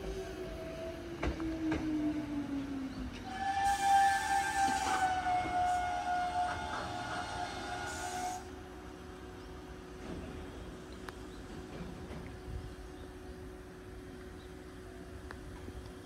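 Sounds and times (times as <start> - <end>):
electric train whine: 0.0 - 16.0
hiss: 3.5 - 5.0, 7.8 - 8.4.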